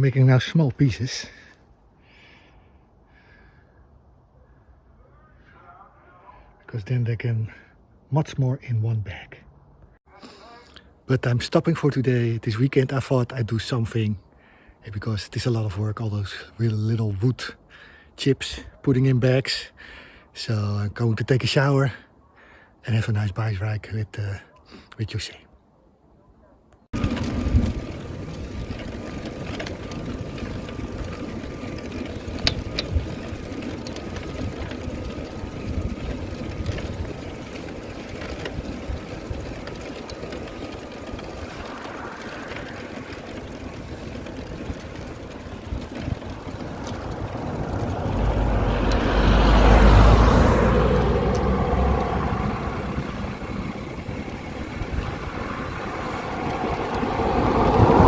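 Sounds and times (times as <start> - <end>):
road noise while riding: 0.0 - 7.0, 9.1 - 58.0
wind rushing over microphone: 27.0 - 58.0.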